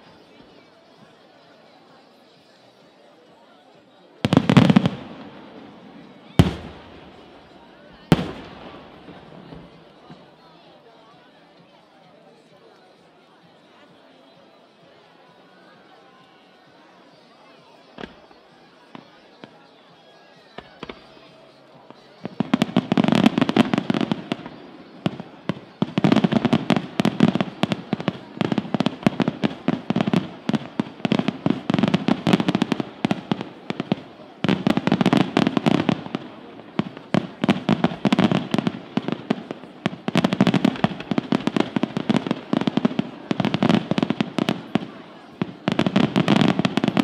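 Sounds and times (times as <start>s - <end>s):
fireworks bangs and crackles: 4.2s - 10.4s, 20.6s - 47.0s.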